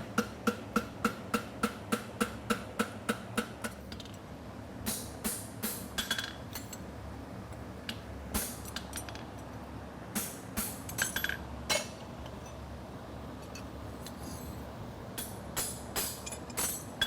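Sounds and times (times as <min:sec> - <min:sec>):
cooling fan hum: 0:00.0 - 0:17.0
hammer tapping horseshoe on anvil: 0:00.1 - 0:04.0, 0:15.2 - 0:17.0.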